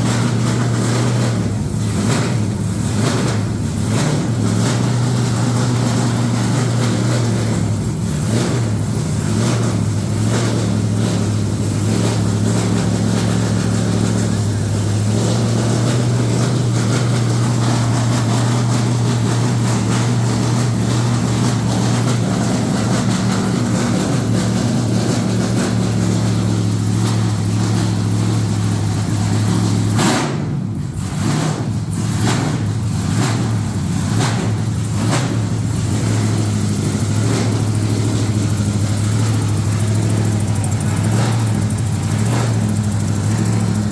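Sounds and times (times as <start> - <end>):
engine running with low hum: 0.0 - 43.9.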